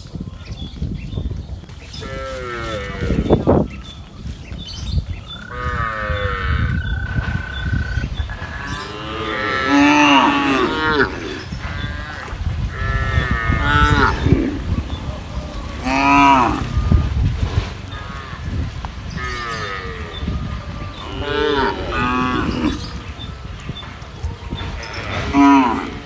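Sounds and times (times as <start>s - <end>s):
cattle mooing: 5.4s - 26.0s.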